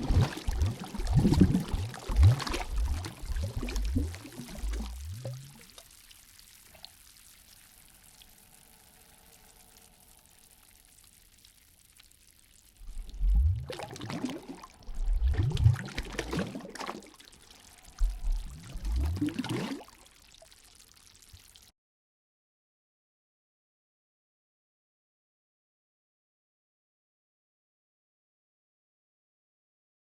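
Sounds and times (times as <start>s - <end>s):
water pouring and splashing: 0.0s - 21.7s.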